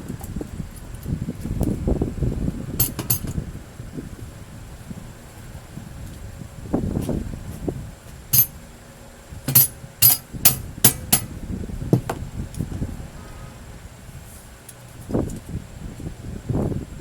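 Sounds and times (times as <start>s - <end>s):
metal knocking against metal: 2.8s - 3.4s, 9.5s - 11.3s.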